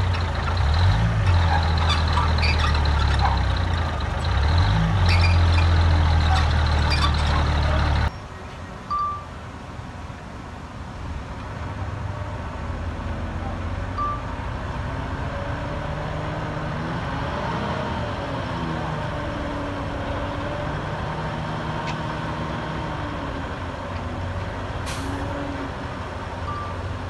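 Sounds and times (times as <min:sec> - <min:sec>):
heavy diesel engine running: 0:00.0 - 0:08.1.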